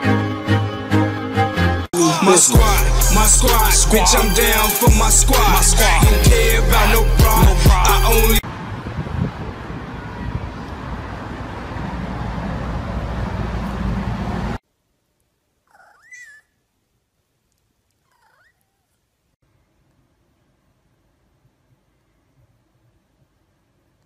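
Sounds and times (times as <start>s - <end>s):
cat meowing: 15.7s - 16.5s, 18.1s - 18.9s.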